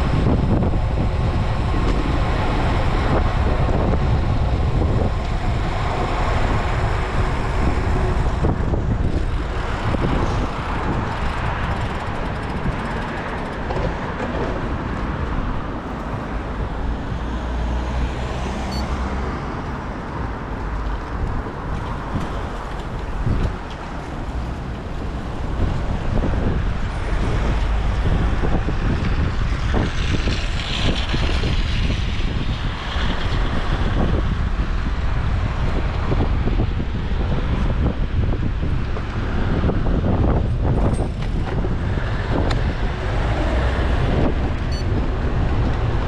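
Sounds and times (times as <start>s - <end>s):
motor traffic passing: 0.0s - 36.8s
wind rumble on microphone: 0.0s - 46.0s.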